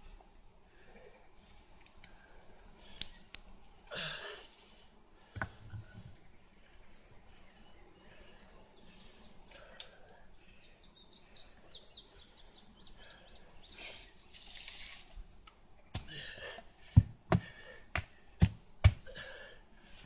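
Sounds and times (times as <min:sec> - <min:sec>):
faint outdoor noise: 0:00.0 - 0:20.0
songbird chirping: 0:04.5 - 0:16.0.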